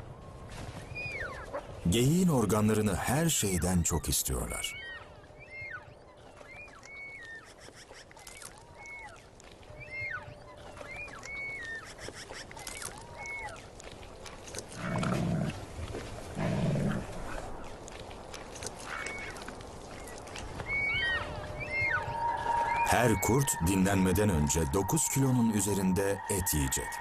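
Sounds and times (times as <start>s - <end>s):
wolves whining: 4.6s - 13.6s, 20.0s - 27.0s
wolf snarling: 16.4s - 17.4s.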